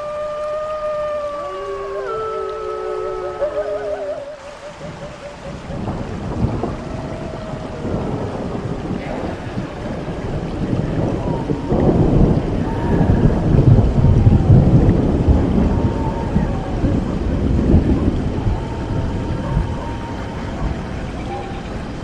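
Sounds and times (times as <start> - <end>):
rain hiss: 0.0 - 22.0
thunder rumble: 0.0 - 22.0.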